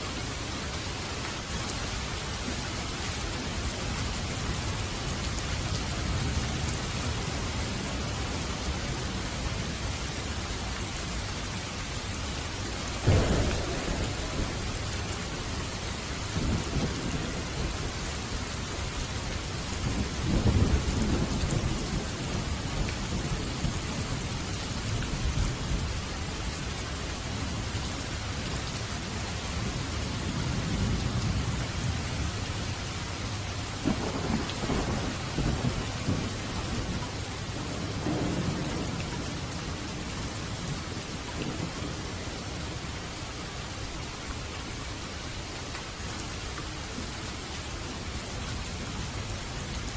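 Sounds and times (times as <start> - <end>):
heavy rain: 0.0 - 49.9
rolling thunder rumbles: 12.9 - 27.7, 33.8 - 42.9
sharp thunderclap: 13.0 - 18.0, 33.8 - 37.0, 37.6 - 39.3.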